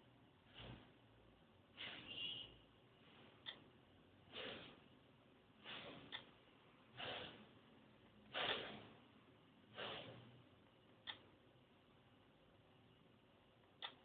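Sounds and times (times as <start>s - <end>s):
puffs of breath: 4.3s - 4.8s, 6.9s - 7.5s, 9.7s - 10.3s.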